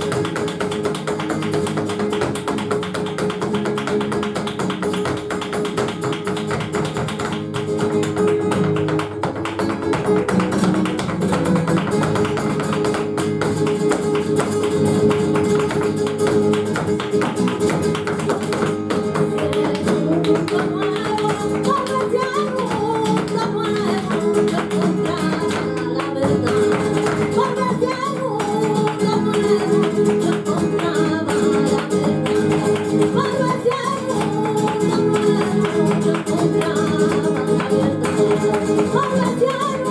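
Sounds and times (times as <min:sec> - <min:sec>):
flamenco guitar: 0:00.0 - 0:39.9
sharp percussive taps: 0:00.0 - 0:39.9
person singing: 0:19.1 - 0:39.9.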